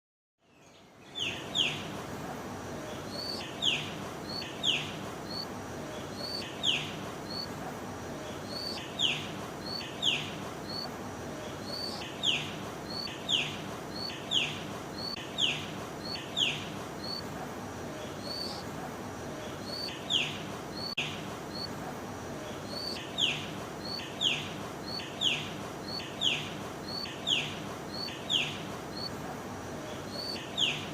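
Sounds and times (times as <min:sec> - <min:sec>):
steady background noise: 0:00.5 - 0:30.9.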